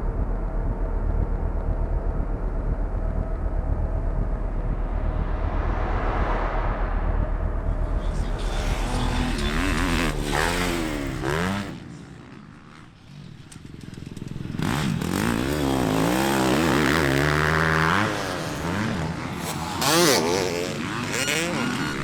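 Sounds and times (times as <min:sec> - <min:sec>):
motocross bike engines revving: 0:08.0 - 0:22.0.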